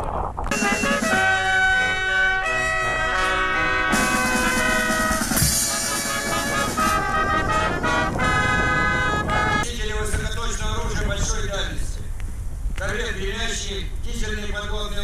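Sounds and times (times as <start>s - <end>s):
drums: 0.5s - 2.0s, 3.2s - 8.6s
brass band playing march: 0.5s - 9.6s
cymbal crashes: 4.0s - 7.8s.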